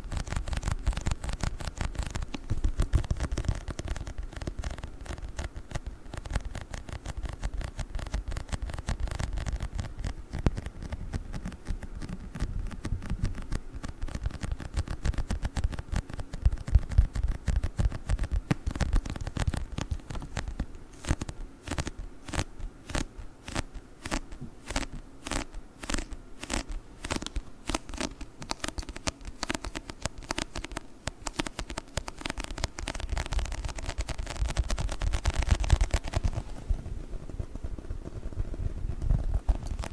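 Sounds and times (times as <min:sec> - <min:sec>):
tapping and scratching on book: 0:00.0 - 0:39.9.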